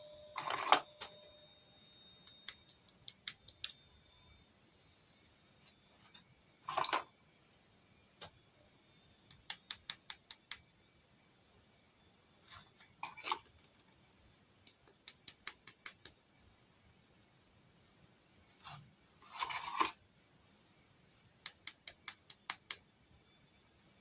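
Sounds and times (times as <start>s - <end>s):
toy pieces clicking: 14.7s - 16.1s, 21.4s - 22.8s.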